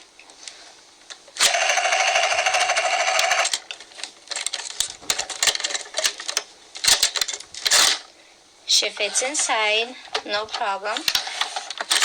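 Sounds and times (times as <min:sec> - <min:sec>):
toy helicopter rotor sound effect: 0:01.4 - 0:03.6
plastic toy clicks and rattles: 0:01.4 - 0:08.0, 0:11.1 - 0:12.0.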